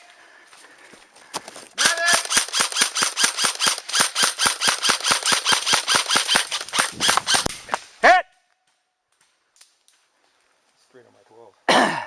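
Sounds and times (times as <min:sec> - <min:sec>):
airsoft rifle firing: 0:01.8 - 0:07.8.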